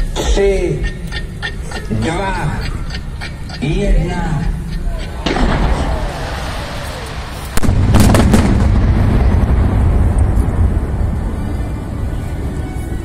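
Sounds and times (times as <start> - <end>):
fireworks sharp bangs: 5.2 - 11.3
rumble of fireworks explosions: 5.2 - 12.9.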